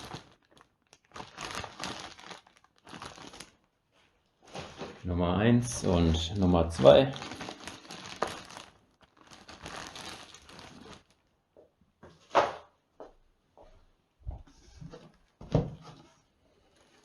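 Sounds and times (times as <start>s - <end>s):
plastic packaging crinkling: 0.0s - 4.9s, 5.8s - 11.4s, 16.5s - 17.0s.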